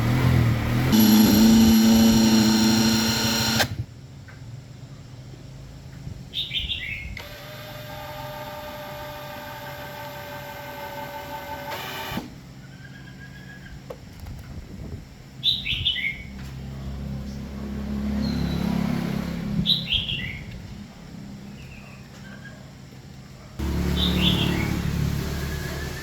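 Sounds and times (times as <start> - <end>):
low mechanical hum: 0.0 - 26.0
bird chirping: 6.3 - 7.2, 19.6 - 20.6, 23.7 - 26.0.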